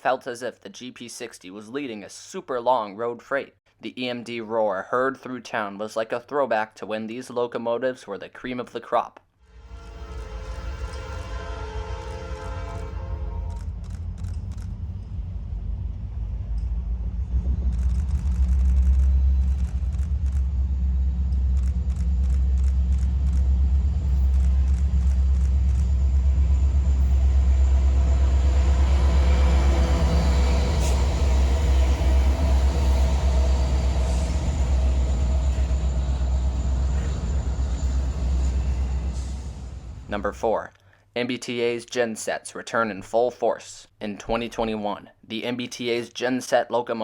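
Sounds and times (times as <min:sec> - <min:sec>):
diesel locomotive engine roar: 0:09.5 - 0:40.4.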